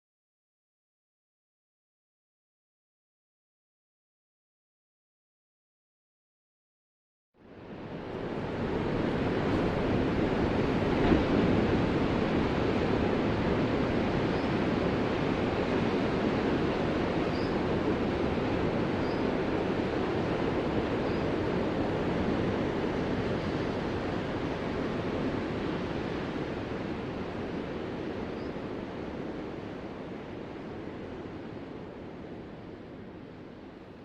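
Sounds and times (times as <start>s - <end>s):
ocean surf washing: 7.5s - 34.0s.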